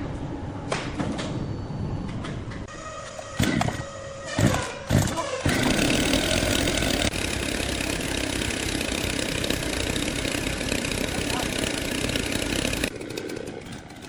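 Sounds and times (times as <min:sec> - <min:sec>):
loud steady machine noise: 0:04.9 - 0:14.0.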